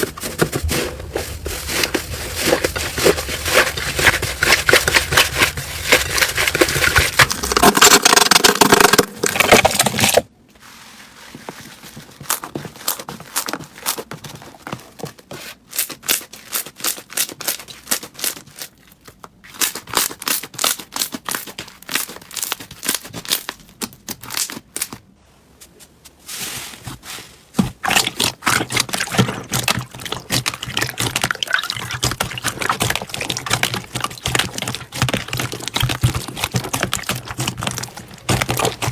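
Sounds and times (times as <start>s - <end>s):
crunchy slime crackling and popping: 1.5s - 10.3s, 19.5s - 25.0s, 27.8s - 38.9s.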